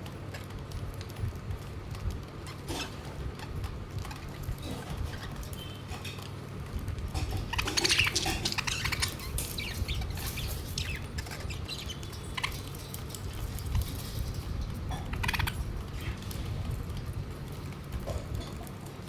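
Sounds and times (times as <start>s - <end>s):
budgerigars chirping: 7.3s - 12.8s, 15.1s - 16.2s.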